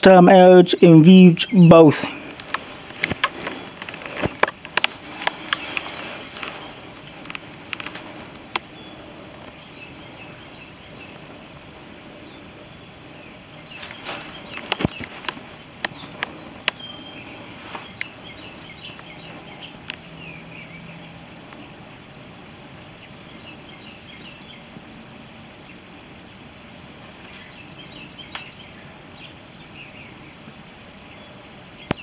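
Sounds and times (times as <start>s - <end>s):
outdoor background noise: 0.0s - 32.0s
small bird chirps: 1.4s - 11.6s, 12.2s - 21.8s, 23.0s - 24.7s, 27.1s - 32.0s
sharp clicks: 13.8s - 20.0s.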